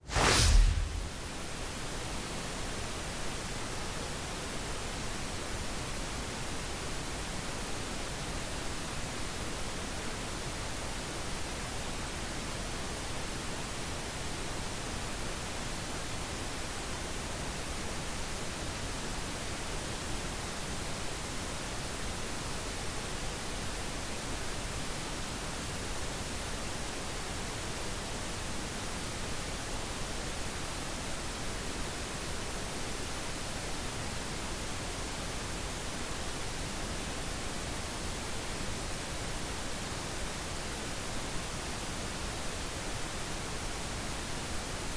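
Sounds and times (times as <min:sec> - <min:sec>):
pink noise hiss: 0:00.0 - 0:02.4.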